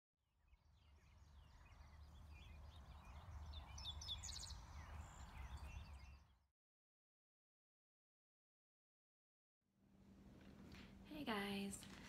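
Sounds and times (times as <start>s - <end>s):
faint birdsong: 0.3s - 6.5s.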